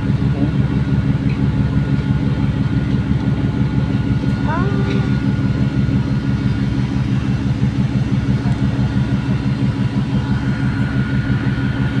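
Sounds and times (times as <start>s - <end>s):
ship diesel engines running: 0.0s - 12.0s.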